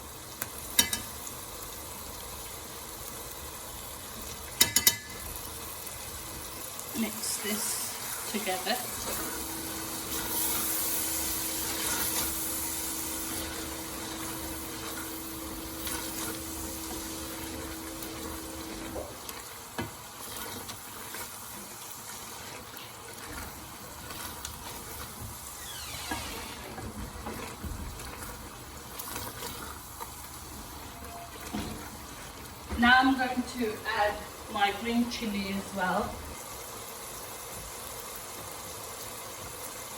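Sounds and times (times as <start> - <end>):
food sizzling in hot oil: 0.0 - 39.9
steady hum: 7.0 - 19.2.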